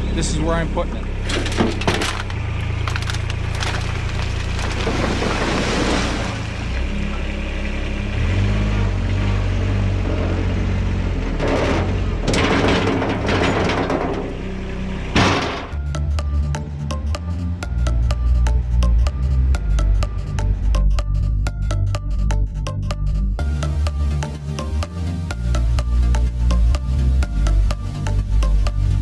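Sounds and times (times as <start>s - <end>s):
skid steer engine running: 0.0s - 20.8s
gravel being moved: 1.3s - 6.4s.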